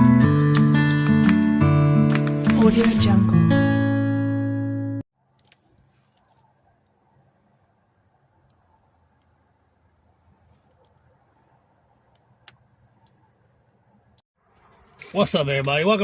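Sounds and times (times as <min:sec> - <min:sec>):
insect chirping trill: 0:05.2 - 0:14.9.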